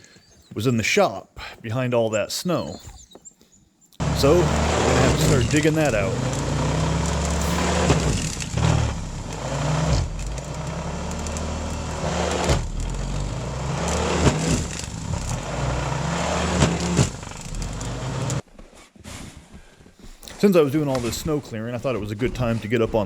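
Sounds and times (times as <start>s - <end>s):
engine running: 4.0s - 18.4s.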